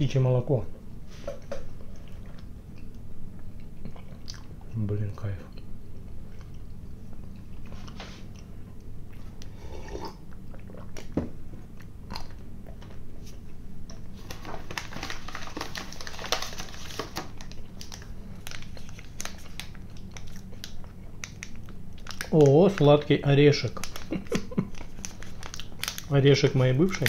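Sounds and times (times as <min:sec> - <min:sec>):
chewing and biting candy: 0:17.4 - 0:23.0, 0:23.8 - 0:26.1.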